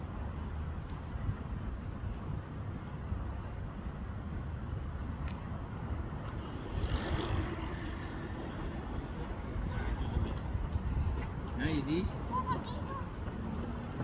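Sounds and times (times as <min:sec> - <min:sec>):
road traffic rumble: 0:04.6 - 0:14.0
vehicle passing by: 0:06.0 - 0:12.0.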